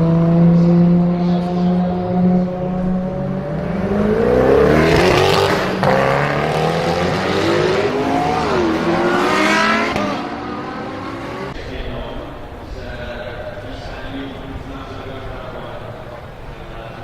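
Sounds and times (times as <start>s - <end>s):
car engine revving hard: 0.0s - 11.6s.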